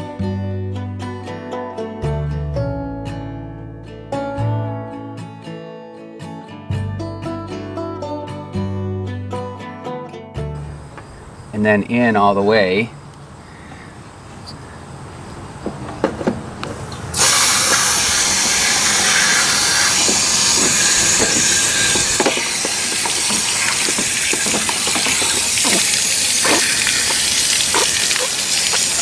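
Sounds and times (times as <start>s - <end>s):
water rushing and spraying: 10.6s - 11.8s, 12.6s - 29.0s
light knocks: 13.0s - 17.1s.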